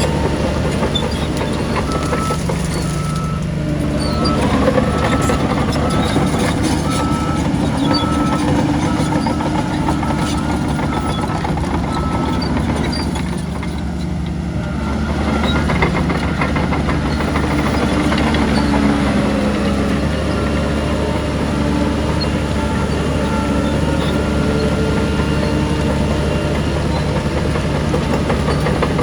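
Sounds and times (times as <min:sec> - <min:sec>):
heavy diesel machinery running: 0:00.0 - 0:29.0
reversing alarm beeping: 0:00.8 - 0:03.4, 0:04.0 - 0:12.6.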